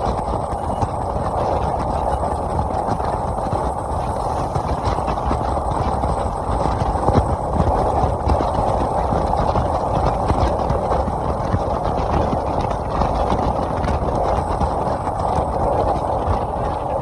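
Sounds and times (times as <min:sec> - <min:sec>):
motorcycle engine running: 0:00.0 - 0:11.8
low wind rumble: 0:00.0 - 0:17.0.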